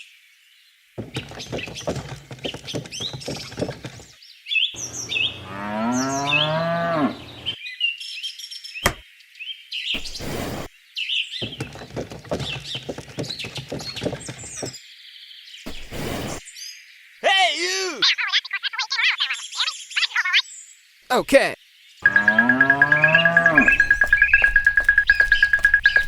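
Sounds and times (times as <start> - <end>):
cow mooing: 5.4 - 7.3, 22.0 - 24.4
birds chirping: 22.0 - 26.0.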